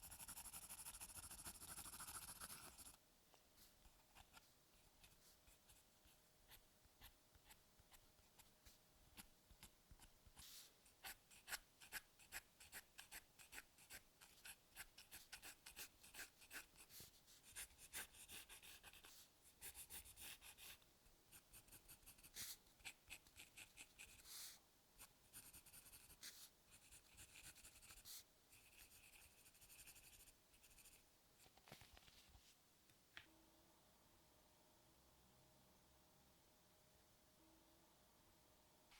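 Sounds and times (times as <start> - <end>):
pencil scratching on paper: 0.0 - 3.0, 3.9 - 8.5, 9.2 - 31.0.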